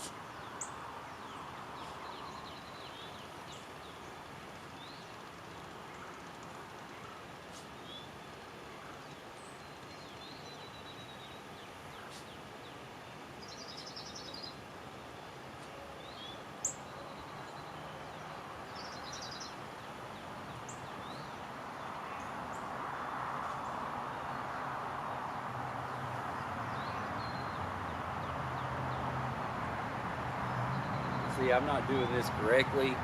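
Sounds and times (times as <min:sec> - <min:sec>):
bird chirps and trills: 0:00.0 - 0:15.3, 0:16.0 - 0:22.7.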